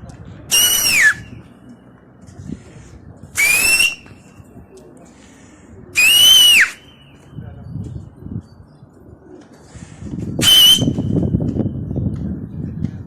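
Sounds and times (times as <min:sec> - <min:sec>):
shrill whistle blasts: 0:00.5 - 0:01.3, 0:03.4 - 0:04.1, 0:06.0 - 0:07.0, 0:10.4 - 0:11.2.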